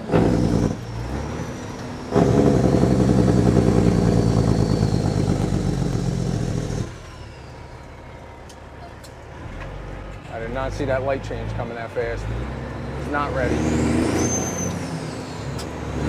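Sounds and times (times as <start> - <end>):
diesel truck engine: 0.0 - 16.0
turbo whistle: 14.0 - 15.4.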